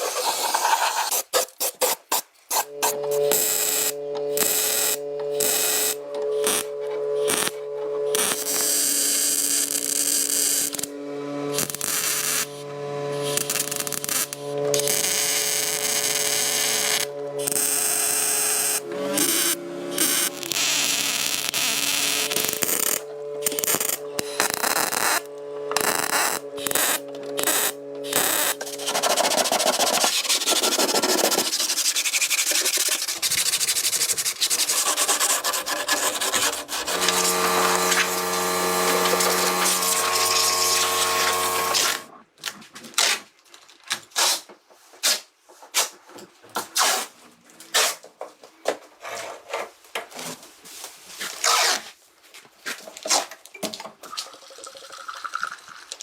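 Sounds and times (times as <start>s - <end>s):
sanding and rubbing noise: 0.0s - 8.0s, 25.9s - 42.1s
power tool motor running: 2.5s - 42.2s.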